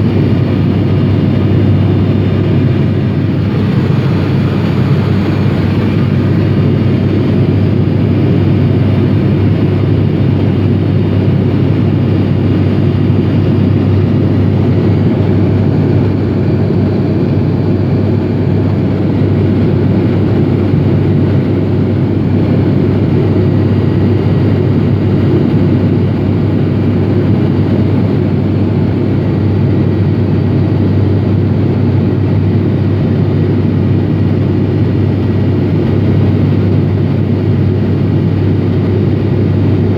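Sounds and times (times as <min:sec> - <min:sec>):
low hum: 0:00.0 - 0:20.8
rushing airflow: 0:00.0 - 0:27.6
propeller engines droning: 0:00.0 - 0:39.9.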